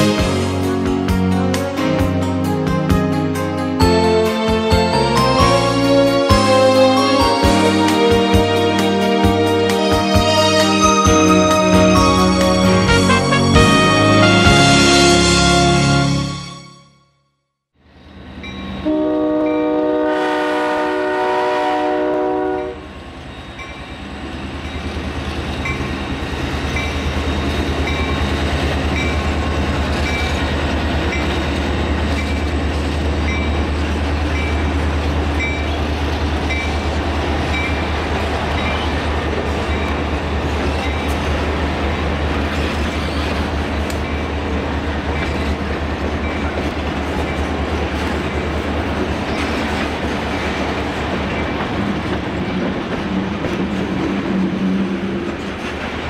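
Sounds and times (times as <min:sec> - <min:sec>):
locomotive engine rumbling: 0:00.0 - 0:16.7
crossing bell ringing: 0:00.0 - 0:17.2, 0:22.6 - 0:32.5
locomotive horn blast: 0:03.9 - 0:17.1, 0:18.8 - 0:22.9
freight cars rolling with rail clicks: 0:23.1 - 0:56.0.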